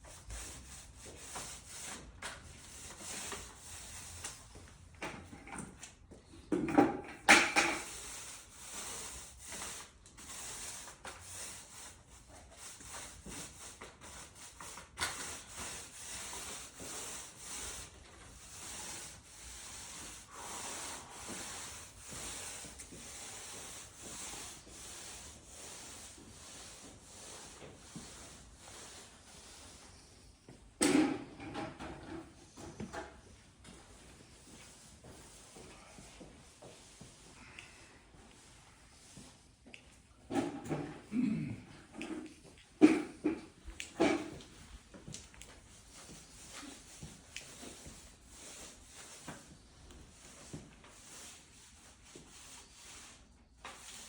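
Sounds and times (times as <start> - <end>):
hand tool rubbing concrete: 7.5 - 29.7, 45.9 - 49.6.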